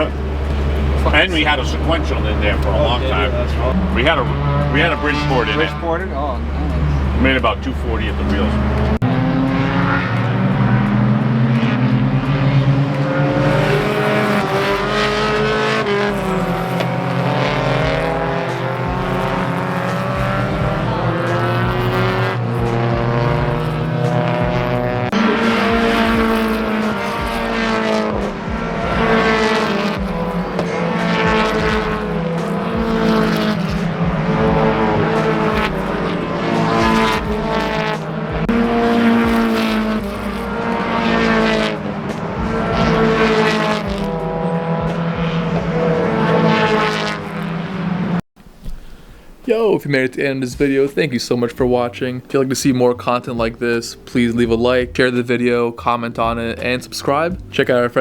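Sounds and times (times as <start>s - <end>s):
race car engines revving: 0.0s - 48.2s, 50.5s - 58.0s.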